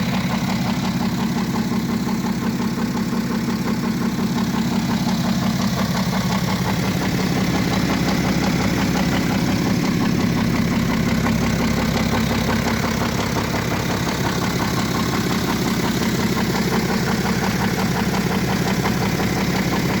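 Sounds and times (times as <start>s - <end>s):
diesel engine idling: 0.0s - 20.0s
engine clattering rattle: 0.0s - 20.0s.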